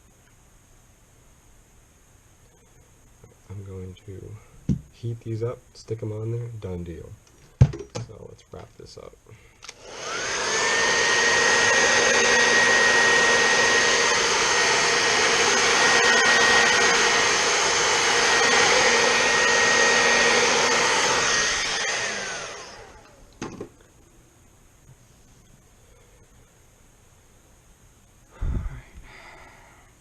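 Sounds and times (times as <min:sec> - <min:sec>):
hot-air blower fan whine: 0:09.3 - 0:30.0.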